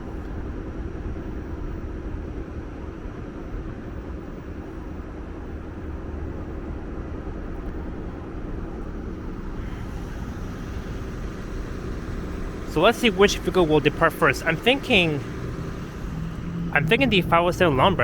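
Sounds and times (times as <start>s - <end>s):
idling vehicles rumble: 4.6s - 18.0s.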